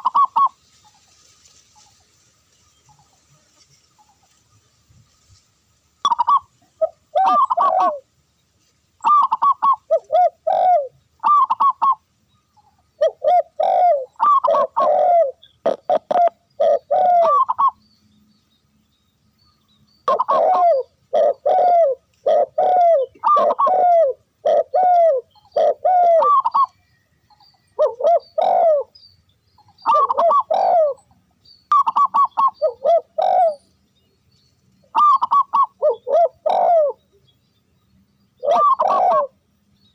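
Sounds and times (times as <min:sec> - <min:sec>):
dove cooing: 0:00.0 - 0:00.6, 0:06.0 - 0:08.1, 0:09.0 - 0:12.0, 0:12.9 - 0:17.8, 0:20.0 - 0:29.0, 0:29.8 - 0:31.1, 0:31.7 - 0:33.7, 0:34.9 - 0:37.0, 0:38.4 - 0:39.4.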